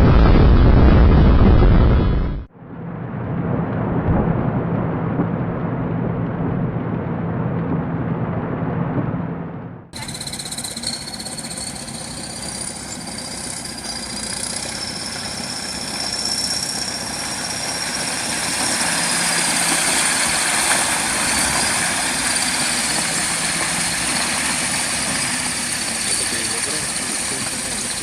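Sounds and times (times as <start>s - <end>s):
engine-like running noise: 0.0s - 28.0s
thin high whine: 10.0s - 28.0s.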